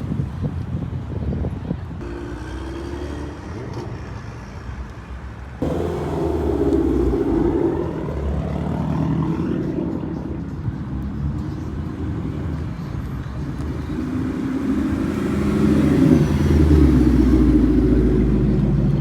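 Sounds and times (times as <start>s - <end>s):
car engines and exhaust running: 0.0s - 19.0s
car engine accelerating: 5.6s - 11.0s, 13.6s - 19.0s.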